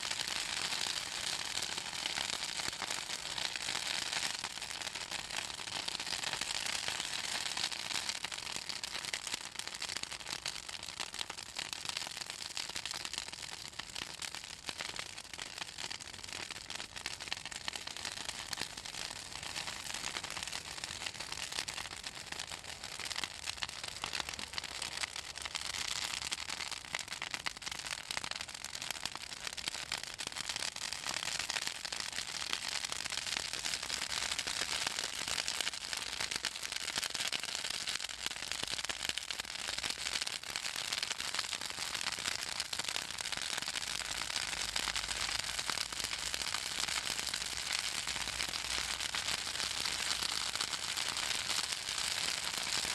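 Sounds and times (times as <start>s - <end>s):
bonfire crackling and popping: 0.0s - 52.9s.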